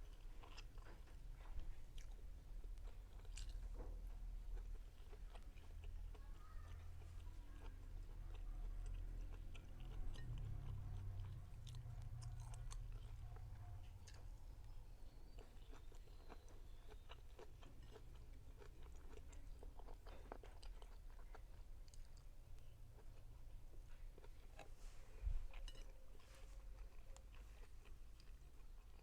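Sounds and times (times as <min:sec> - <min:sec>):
person chewing food: 0:00.0 - 0:29.0.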